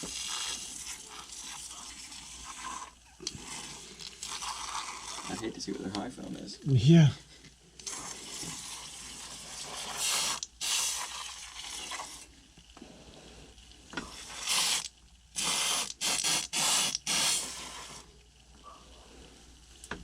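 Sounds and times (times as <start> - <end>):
sprayer hissing: 7.8 - 11.2, 14.1 - 18.1.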